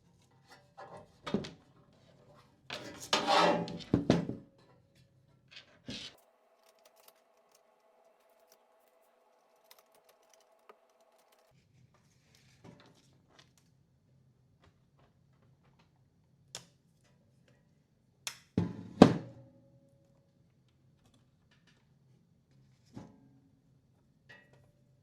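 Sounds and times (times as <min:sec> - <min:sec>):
rustling scrape: 0:02.2 - 0:04.2, 0:05.5 - 0:07.6
small parts clicking and scraping: 0:05.5 - 0:11.6.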